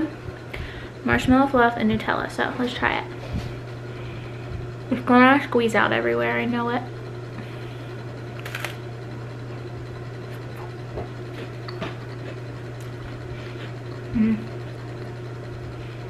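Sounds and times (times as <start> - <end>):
low hum: 0.0 - 16.0
crunchy bite into cracker: 8.4 - 8.8
quiet chewing: 10.3 - 15.1.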